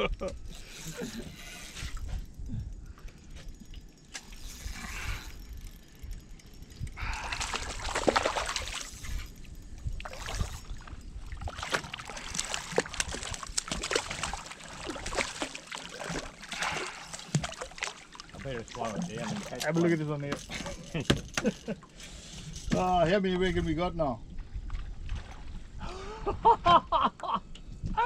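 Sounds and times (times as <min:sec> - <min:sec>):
water splashing around boat: 0:06.6 - 0:22.9.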